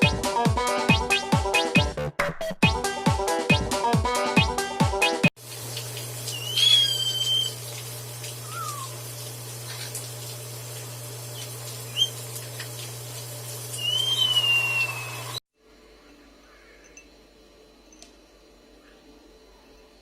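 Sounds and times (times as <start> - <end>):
parrot chirp: 6.3 - 7.6, 8.4 - 9.0, 11.4 - 12.2, 13.8 - 15.4
parrot whistling: 6.3 - 7.6, 8.4 - 9.0, 11.9 - 12.2, 13.8 - 15.4.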